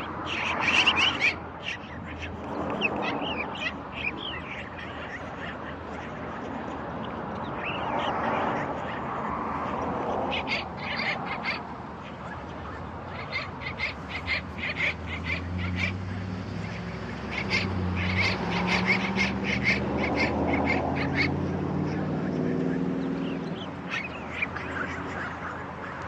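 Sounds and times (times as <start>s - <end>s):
birds calling: 0.0s - 26.0s.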